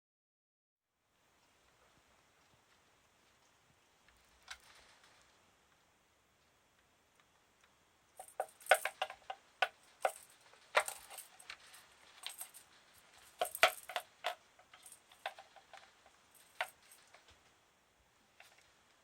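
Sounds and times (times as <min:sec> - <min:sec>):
toy clicking and clattering: 0:08.2 - 0:17.6.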